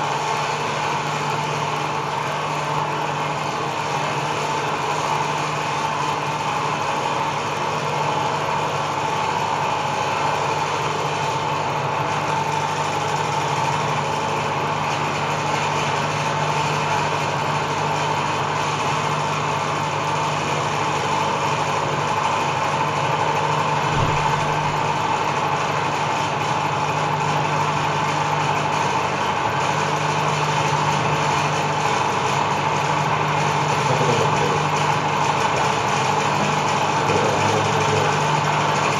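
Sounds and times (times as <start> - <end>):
microwave oven humming: 0.0 - 38.9.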